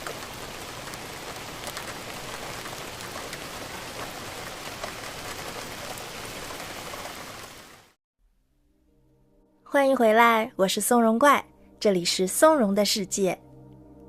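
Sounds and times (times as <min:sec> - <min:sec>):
rain falling steadily: 0:00.0 - 0:08.0.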